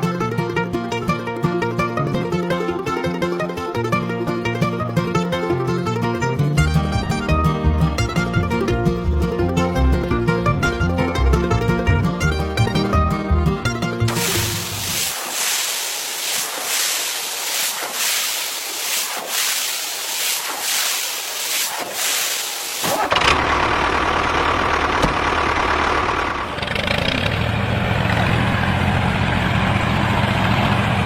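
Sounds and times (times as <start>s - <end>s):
truck engine running: 6.5s - 15.2s, 22.3s - 31.0s
pulsing hiss: 14.1s - 23.1s.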